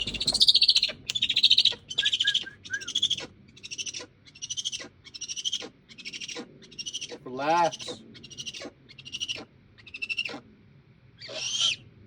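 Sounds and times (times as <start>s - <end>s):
owl screeching: 0.0s - 10.4s, 11.2s - 11.8s.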